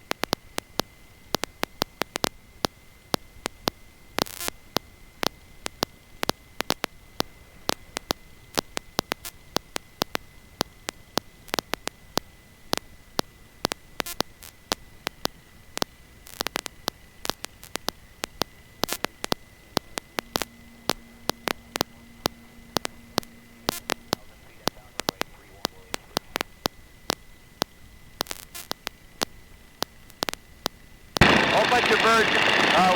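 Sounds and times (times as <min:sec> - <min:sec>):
crackling static clicks and hiss: 0:00.0 - 0:32.9
high-pitched whine: 0:16.4 - 0:32.9
low hum: 0:17.6 - 0:32.9.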